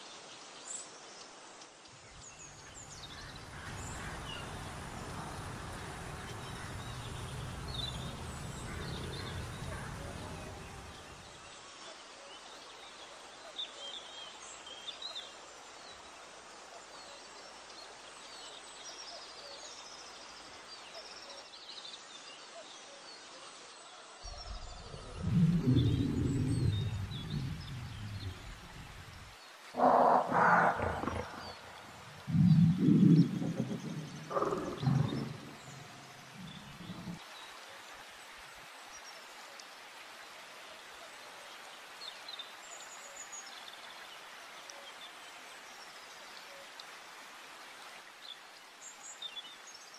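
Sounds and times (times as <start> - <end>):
outdoor background hiss: 0.0 - 49.9
animal's loud low calls: 24.4 - 37.2.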